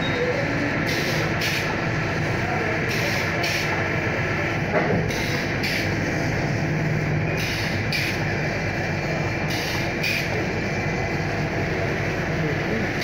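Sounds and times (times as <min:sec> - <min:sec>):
constant machine hum: 0:00.0 - 0:13.0
stamping machine strokes: 0:04.7 - 0:08.3, 0:09.3 - 0:10.5.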